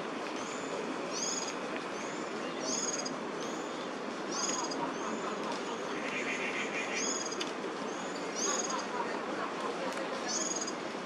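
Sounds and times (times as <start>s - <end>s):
small bird calling: 1.1s - 1.6s, 8.3s - 8.9s.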